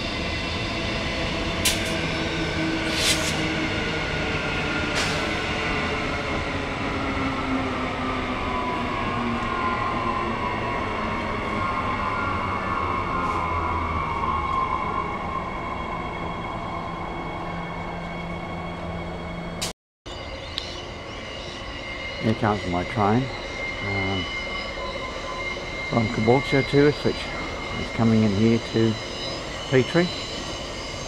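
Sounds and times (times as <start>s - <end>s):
train motor whine: 16.4s - 31.0s.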